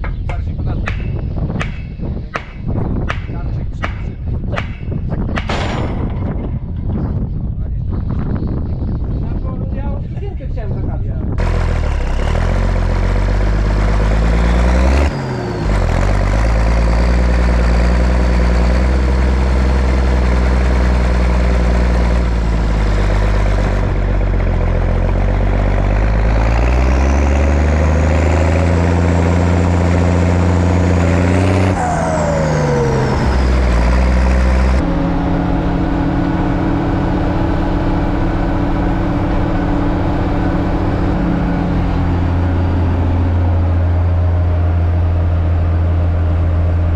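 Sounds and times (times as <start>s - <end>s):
tractor diesel engine running hard: 11.4s - 46.9s.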